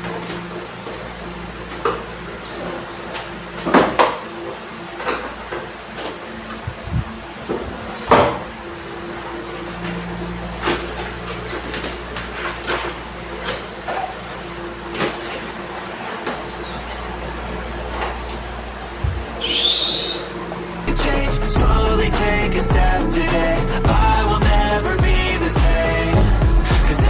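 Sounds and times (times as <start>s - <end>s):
low hum: 6.5s - 12.2s, 18.4s - 27.0s.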